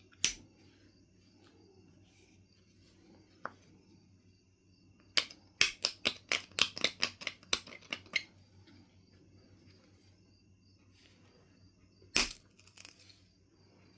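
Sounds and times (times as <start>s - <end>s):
flint knapping clicks: 0.1s - 0.4s.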